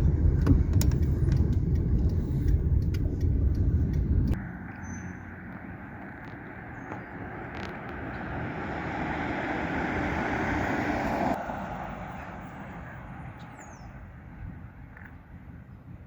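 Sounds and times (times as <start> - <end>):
vehicle road noise: 0.0 - 16.0.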